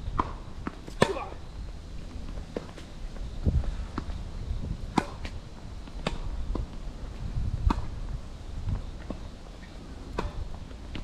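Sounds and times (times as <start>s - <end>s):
wind rumble on microphone: 0.0s - 11.0s
tennis ball bouncing on hard court: 0.1s - 1.3s, 4.9s - 5.4s, 7.6s - 7.9s, 10.1s - 11.0s
tennis ball struck by rackets: 0.1s - 1.4s, 4.9s - 5.4s, 6.0s - 6.8s, 7.6s - 7.9s, 10.1s - 11.0s.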